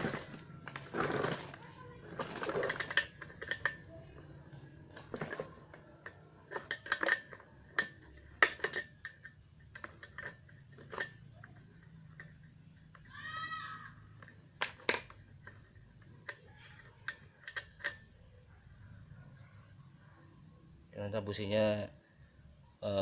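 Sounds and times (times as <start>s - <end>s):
metal tool clinks and scrapes: 5.0s - 13.0s, 14.2s - 18.2s.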